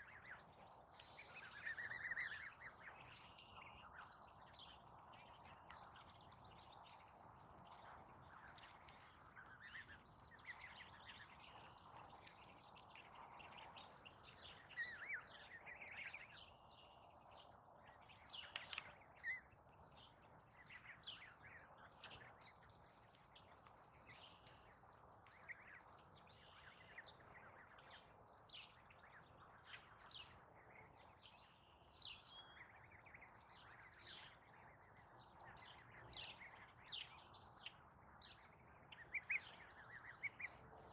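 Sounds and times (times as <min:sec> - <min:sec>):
faint birds chirping: 0:00.0 - 0:02.2
outdoor hiss: 0:00.7 - 0:01.9.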